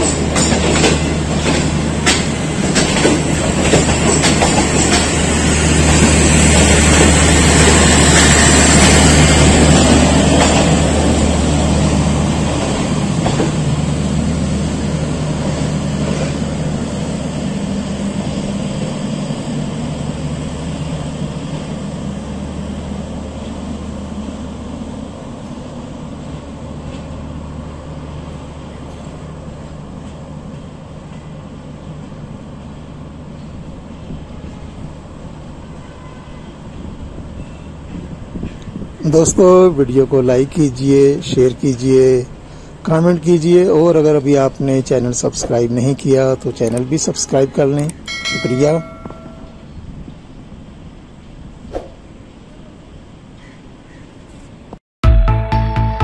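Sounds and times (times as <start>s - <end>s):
wheels clicking over rail joints: 0.0s - 11.2s, 45.1s - 49.5s
train coaches rolling past: 0.0s - 54.8s.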